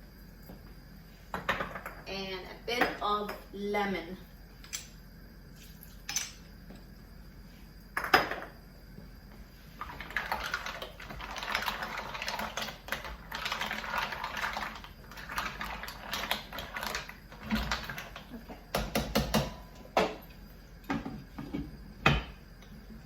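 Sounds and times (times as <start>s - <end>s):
stew sizzling and bubbling: 9.1s - 23.0s.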